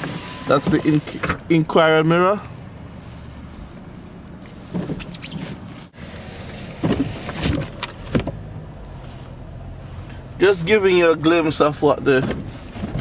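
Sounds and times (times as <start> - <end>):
car engine and road drone: 0.0 - 13.0
short squeaks and knocks: 4.7 - 5.6.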